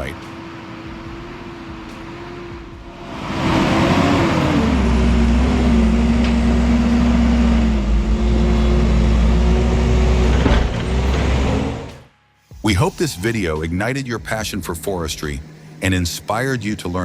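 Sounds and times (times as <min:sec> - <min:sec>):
heavy machine engine rumbling: 0:00.0 - 0:12.1.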